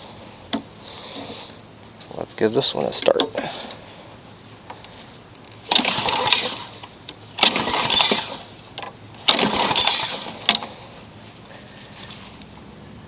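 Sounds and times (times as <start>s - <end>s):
lawnmower engine cranking: 0.1s - 12.7s.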